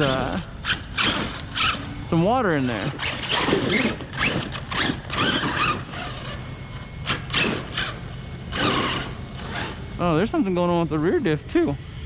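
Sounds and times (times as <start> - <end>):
drivetrain scraping and grinding: 2.7 - 6.4.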